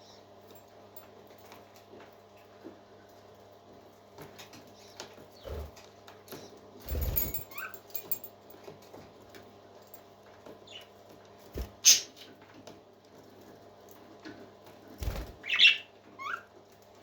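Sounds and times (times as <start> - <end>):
parrot chick squeaking: 15.4 - 16.5.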